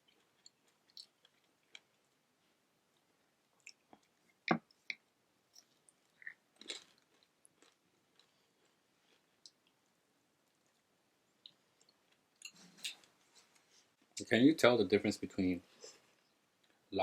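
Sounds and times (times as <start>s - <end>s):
chewing and mouth clicks: 0.0s - 2.0s, 3.6s - 9.8s.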